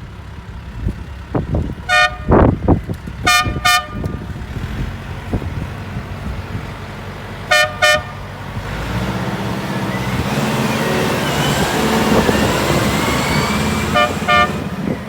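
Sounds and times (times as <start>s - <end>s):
diesel engine revving: 0.0s - 15.0s
horn toots: 1.9s - 2.6s, 3.2s - 4.3s, 7.5s - 8.3s, 12.2s - 15.0s.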